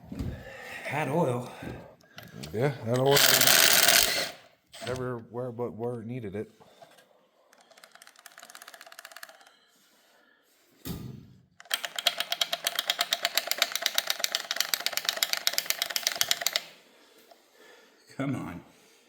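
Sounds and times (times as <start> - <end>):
socket ratchet clicking: 3.0 - 5.0, 7.6 - 9.5, 11.6 - 16.8.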